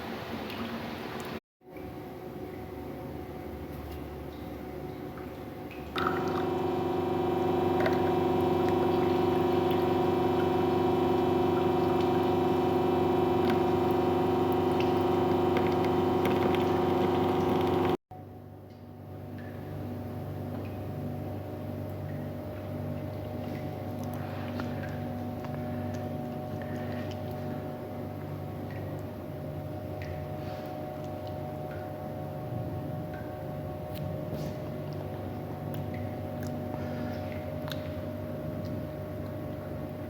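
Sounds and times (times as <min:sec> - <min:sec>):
espresso machine pump humming: 0:06.0 - 0:18.0.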